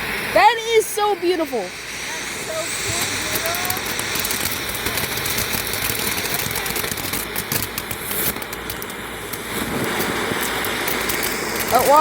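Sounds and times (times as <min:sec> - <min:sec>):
firework crackling: 0:00.0 - 0:12.0
steady hiss: 0:00.0 - 0:12.0
rapid small pops: 0:02.5 - 0:12.0.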